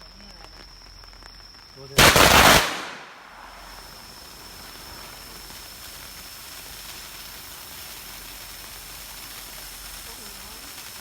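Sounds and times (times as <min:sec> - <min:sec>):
firework fountain hissing: 0:01.9 - 0:11.0.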